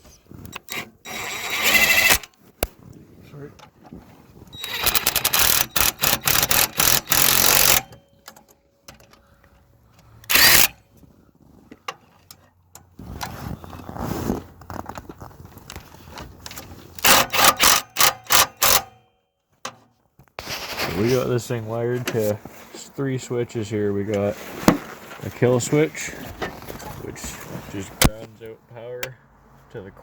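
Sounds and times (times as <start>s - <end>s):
ratchet wrench clicking: 4.6s - 7.9s, 10.3s - 10.7s, 17.0s - 18.9s.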